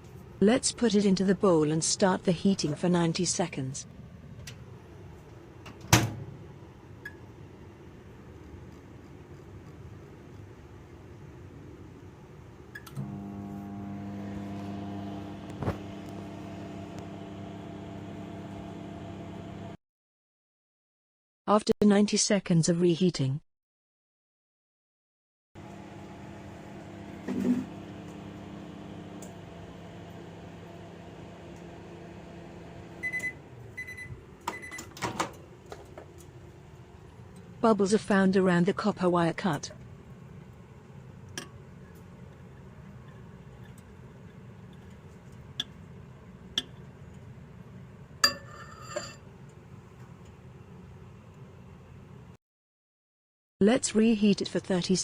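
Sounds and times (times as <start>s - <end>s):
microwave oven humming: 12.4s - 19.8s, 25.6s - 37.6s
keypad beep: 33.0s - 34.9s.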